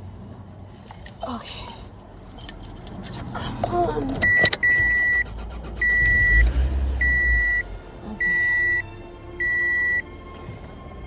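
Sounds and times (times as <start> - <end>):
car warning chime beeping: 4.2 - 10.1.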